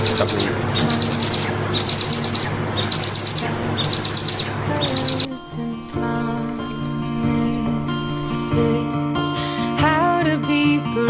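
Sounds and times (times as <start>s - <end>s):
eagle chick chittering: 0.0s - 5.3s
guitar music: 0.0s - 11.0s.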